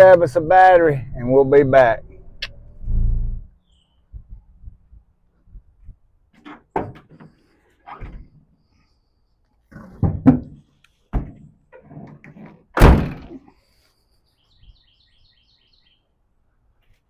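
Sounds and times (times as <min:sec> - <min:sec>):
knocks and thumps: 0:06.4 - 0:07.4, 0:09.7 - 0:13.4
loud door slam: 0:12.8 - 0:13.4.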